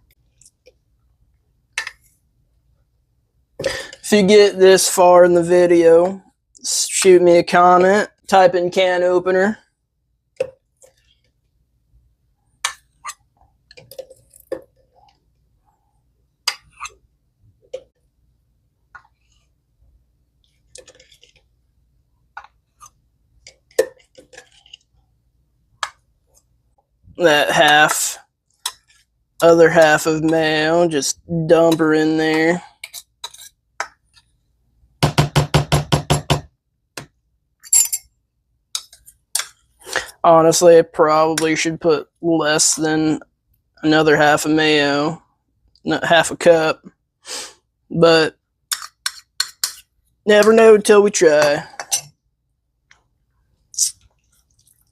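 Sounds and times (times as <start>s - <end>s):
utensil knocking on mixing bowl: 35.0s - 36.5s.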